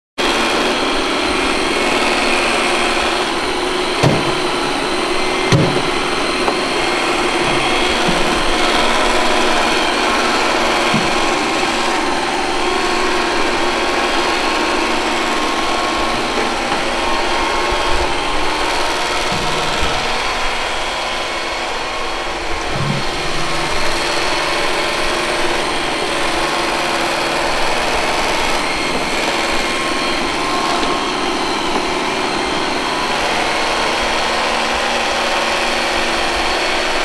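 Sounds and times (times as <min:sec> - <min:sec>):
robot vacuum whirring: 0:00.2 - 0:37.0
sharp knock: 0:04.0 - 0:04.5, 0:05.5 - 0:06.6.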